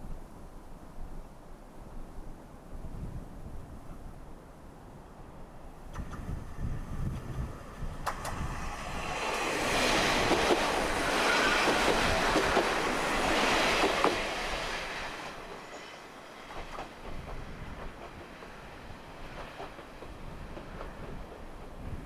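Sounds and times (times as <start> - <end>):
diesel railcar passing: 4.8 - 22.0
wheels clattering over rail joints: 5.9 - 21.8.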